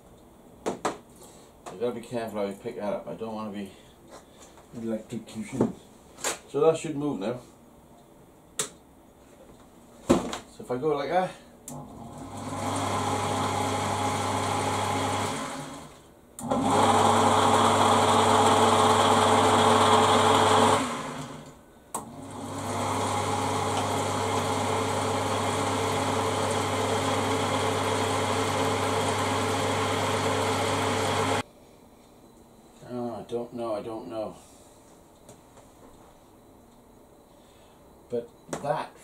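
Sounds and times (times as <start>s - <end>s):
electric motor humming: 11.7s - 31.4s.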